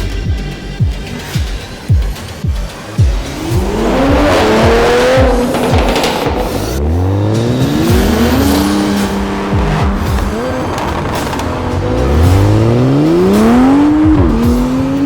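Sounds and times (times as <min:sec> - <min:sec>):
car engine accelerating: 0:02.3 - 0:15.0.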